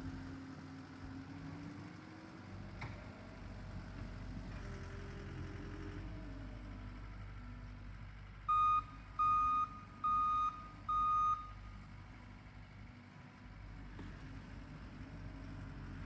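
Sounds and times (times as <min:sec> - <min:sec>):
backup alarm beeping: 0:08.5 - 0:11.6.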